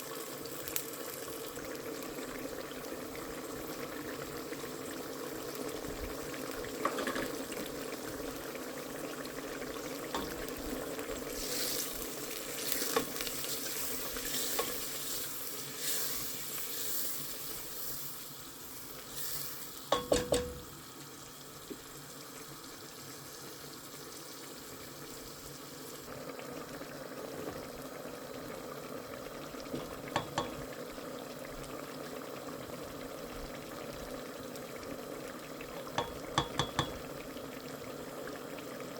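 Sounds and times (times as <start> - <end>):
food sizzling in a pot: 0.0 - 38.9
utensil clinking on pot: 19.9 - 20.7, 36.0 - 37.0.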